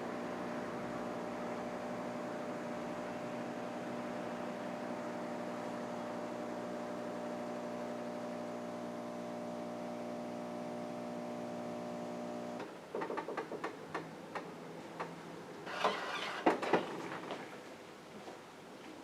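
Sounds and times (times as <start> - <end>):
coffee machine humming: 0.0 - 12.7.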